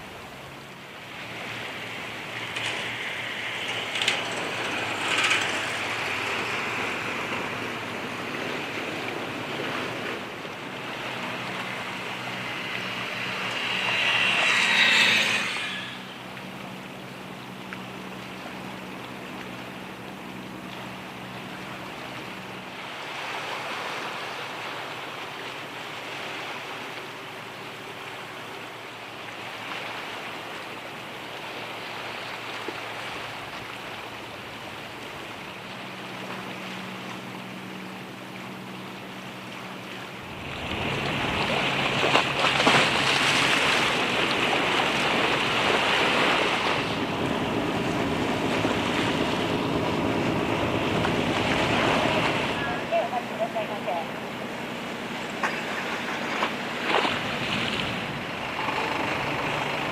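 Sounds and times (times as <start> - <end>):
boat engine humming: 0.0 - 59.9
water noise: 0.0 - 59.9
loud rushing noise: 10.7 - 16.3.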